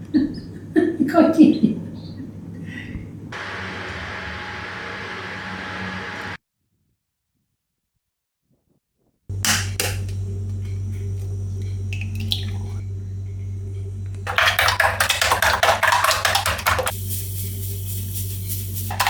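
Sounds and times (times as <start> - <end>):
steady low hum: 9.3 - 19.0
rapid whisking strokes: 14.2 - 19.0
metal utensil clattering in a bowl: 14.3 - 16.9.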